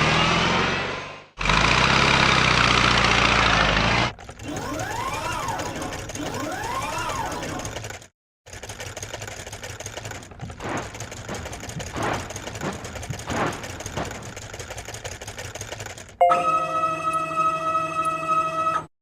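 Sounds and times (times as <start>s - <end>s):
rapid mechanical rattle: 1.4s - 16.2s.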